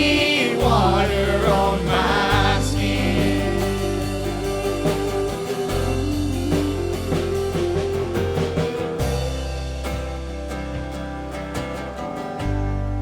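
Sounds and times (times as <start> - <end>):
drum kit beat: 0.0 - 12.9
electric guitar: 0.0 - 13.0
sustained bass notes: 0.0 - 13.0.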